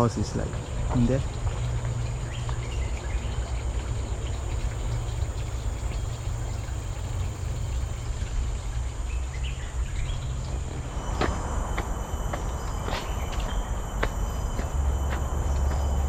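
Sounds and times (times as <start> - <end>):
insects droning: 0.0 - 16.0
low microphone rumble: 0.0 - 16.0
faint bird chirps: 4.3 - 16.0.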